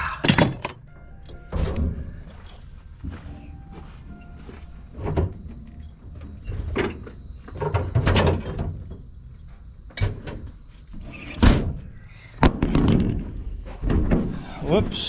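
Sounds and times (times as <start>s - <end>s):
knocks and bangs: 12.4s - 14.4s.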